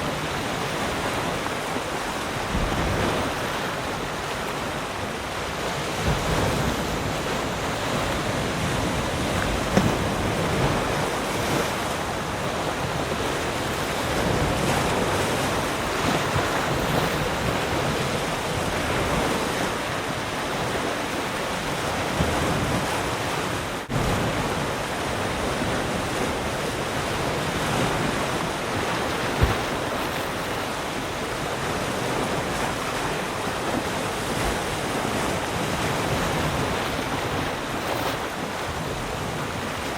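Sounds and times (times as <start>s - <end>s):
ocean waves washing ashore: 0.0s - 39.9s.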